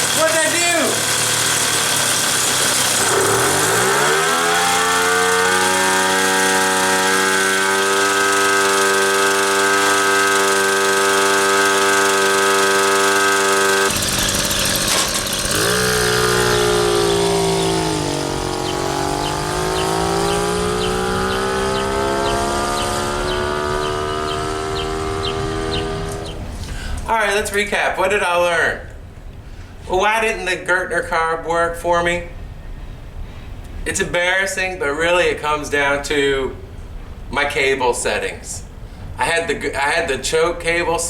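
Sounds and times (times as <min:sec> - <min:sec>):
moped engine revving: 0:00.0 - 0:26.8.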